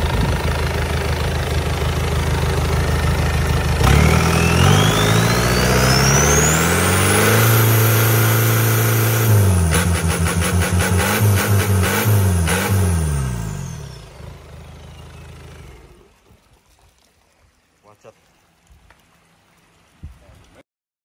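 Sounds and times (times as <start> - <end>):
diesel engine idling and revving: 0.0 - 16.2
high engine whine: 0.0 - 16.2.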